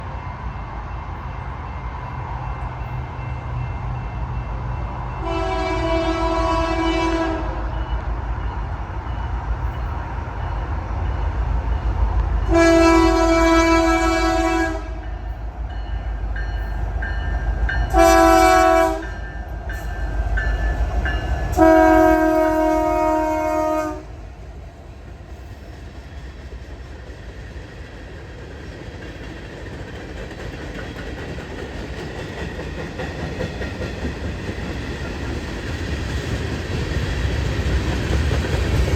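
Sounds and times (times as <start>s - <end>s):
train running: 0.0s - 38.9s
locomotive air horn: 5.2s - 7.8s, 12.5s - 15.1s, 17.9s - 19.2s, 21.5s - 24.1s.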